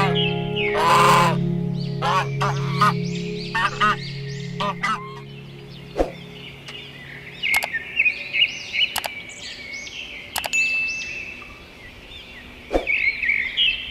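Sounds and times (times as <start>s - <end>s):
small birds chirping: 0.0s - 13.9s
sharp clicks: 7.5s - 7.8s, 8.9s - 9.2s, 10.3s - 10.6s.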